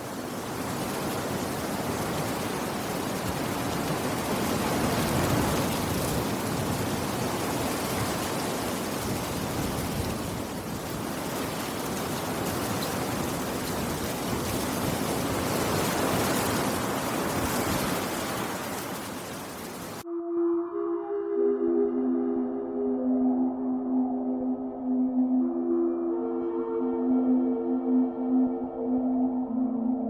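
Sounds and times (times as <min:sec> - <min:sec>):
dense rainfall: 0:00.0 - 0:20.0.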